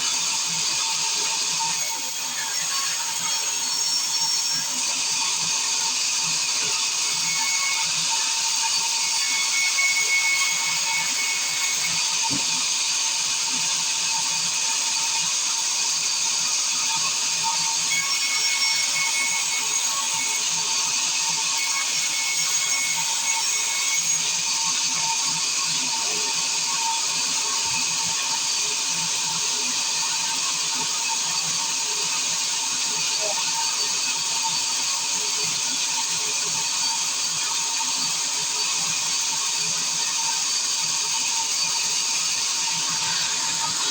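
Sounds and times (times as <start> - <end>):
circular saw blade whining: 0.0 - 43.9.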